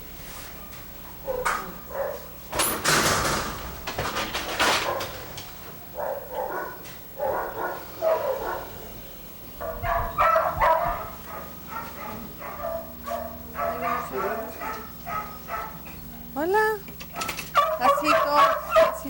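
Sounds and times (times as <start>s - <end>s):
dogs barking: 1.0s - 2.5s, 4.4s - 19.0s
noisy scraping rattle: 2.5s - 6.5s, 9.8s - 19.0s.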